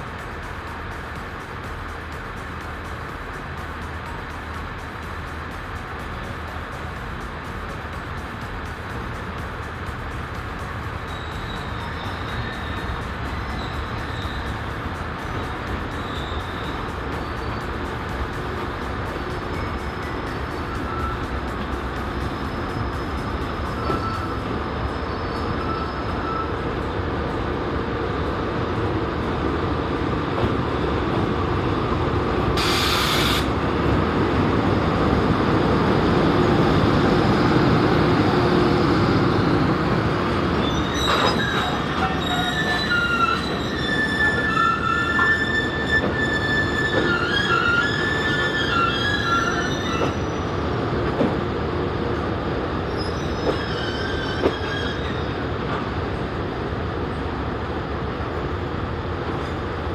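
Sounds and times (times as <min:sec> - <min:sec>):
train wheels squealing: 0:00.0 - 0:31.9, 0:32.6 - 0:56.4
freight train rumbling: 0:00.0 - 0:59.9
short hiss: 0:32.6 - 0:33.6.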